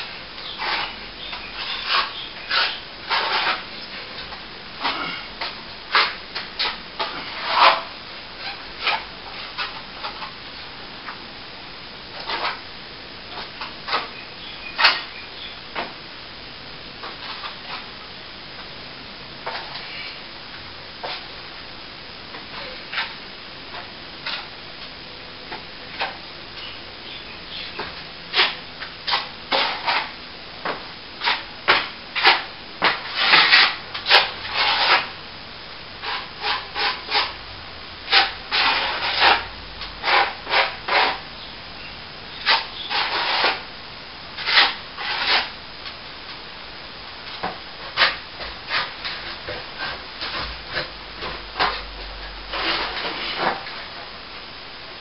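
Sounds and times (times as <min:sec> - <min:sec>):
hand tool scraping plaster wall: 0:00.5 - 0:10.3, 0:27.8 - 0:30.2, 0:31.2 - 0:35.2, 0:36.0 - 0:37.4, 0:38.1 - 0:41.2, 0:42.4 - 0:43.7, 0:44.4 - 0:45.5, 0:47.4 - 0:51.8, 0:52.5 - 0:53.7.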